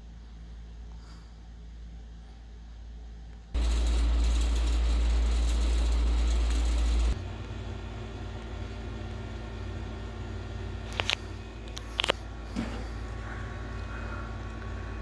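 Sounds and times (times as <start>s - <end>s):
ceiling fan running: 3.6s - 15.0s.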